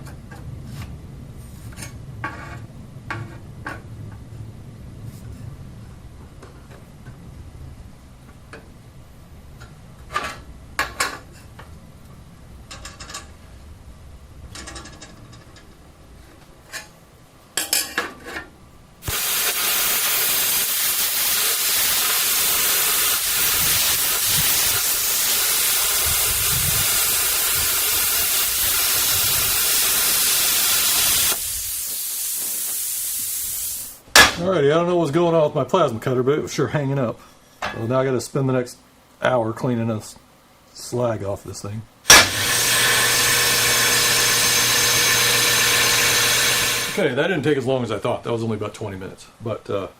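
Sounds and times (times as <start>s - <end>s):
air hiss: 19.0s - 34.1s
plasma cutter hissing: 19.0s - 34.4s, 42.1s - 47.0s.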